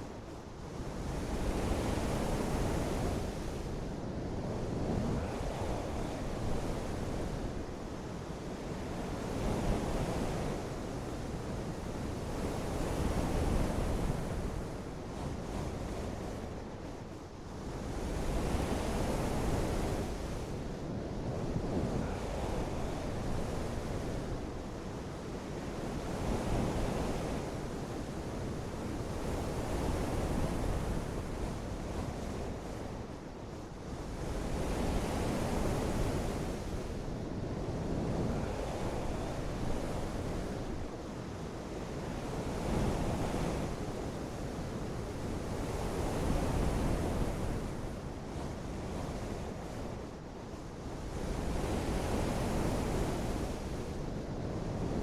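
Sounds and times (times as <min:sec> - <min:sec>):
gusting wind: 0:00.0 - 0:55.0.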